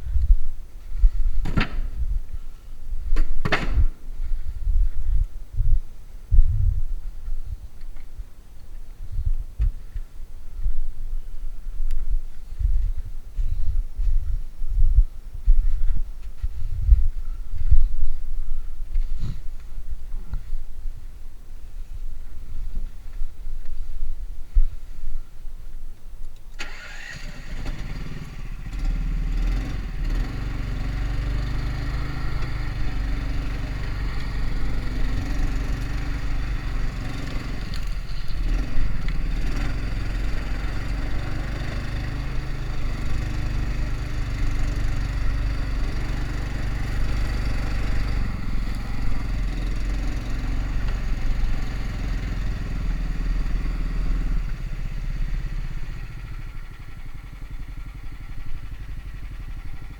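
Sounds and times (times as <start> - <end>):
small engine starting and running: 26.5 - 59.9.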